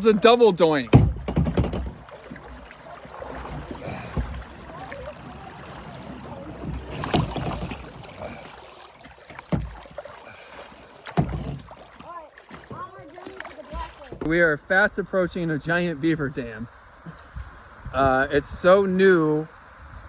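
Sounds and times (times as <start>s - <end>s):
water splashing around kayak hull: 0.0s - 14.4s
knocks on kayak: 0.7s - 2.6s, 6.5s - 8.0s, 9.3s - 10.0s, 11.0s - 11.9s.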